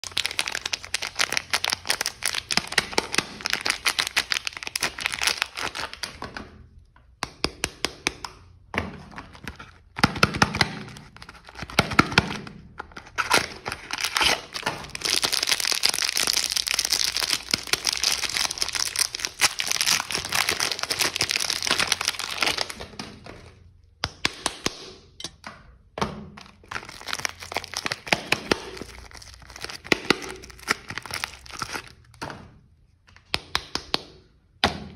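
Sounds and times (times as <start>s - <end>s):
soap wrappers crinkling and tearing: 0.0s - 6.2s, 9.1s - 23.7s, 26.4s - 32.2s.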